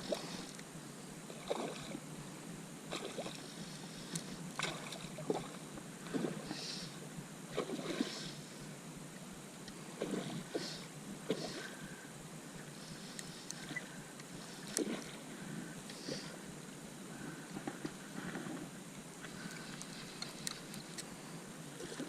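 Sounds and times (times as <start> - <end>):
steady hiss: 0.0 - 22.0
water splashing: 1.3 - 2.0, 2.9 - 3.5, 4.6 - 6.6.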